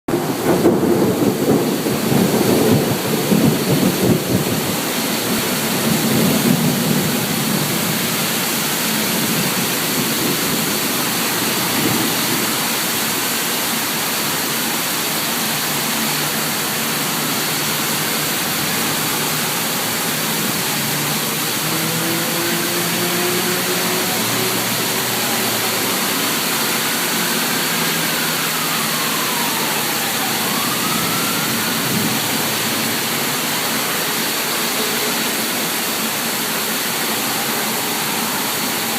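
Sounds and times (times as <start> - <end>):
rumbling thunder: 0.1 - 8.2
heavy rain: 0.1 - 38.9.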